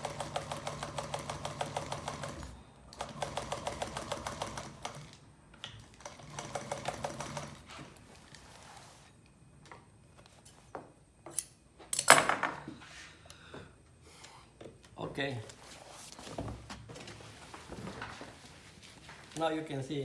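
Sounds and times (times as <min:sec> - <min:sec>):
sewing machine ticking: 0:00.0 - 0:05.2, 0:06.0 - 0:07.6
sewing machine clicks: 0:00.0 - 0:07.7.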